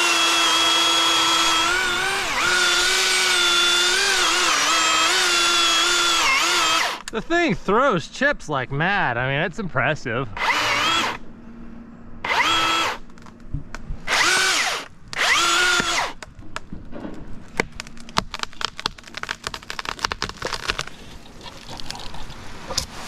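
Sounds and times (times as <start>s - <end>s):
battery chainsaw whining: 0.0s - 7.3s, 10.3s - 11.2s, 12.2s - 13.0s, 14.1s - 16.2s
sharp clicks and cracks: 15.1s - 21.0s.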